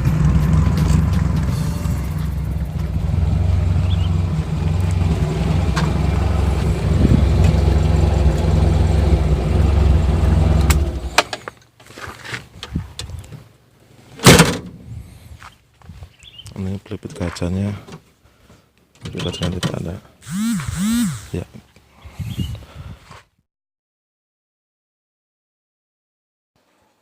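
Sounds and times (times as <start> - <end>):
car engine running: 0.0 - 11.2, 20.2 - 21.4
loud thump: 14.2 - 14.8.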